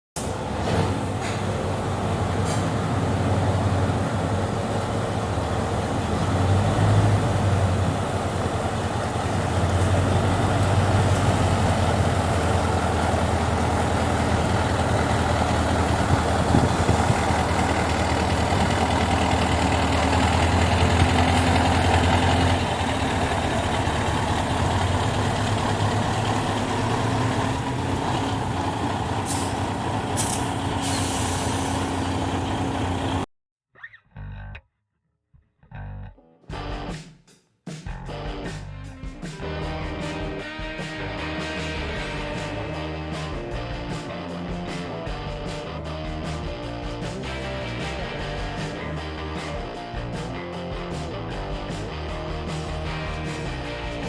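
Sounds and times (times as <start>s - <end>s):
diesel truck engine running: 0.2s - 33.3s, 41.0s - 54.0s
short air hisses: 29.2s - 32.0s.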